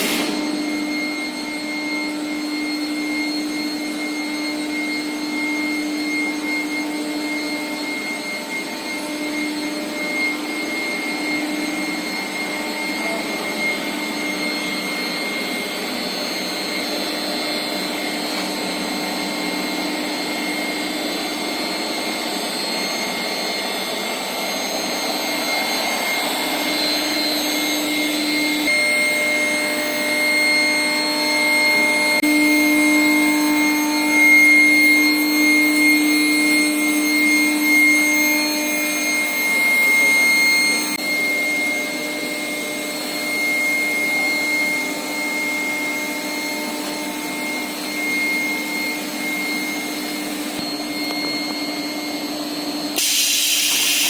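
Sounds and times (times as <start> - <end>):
steady machine whining tones: 0.0 - 54.0
industrial drone: 52.9 - 54.0.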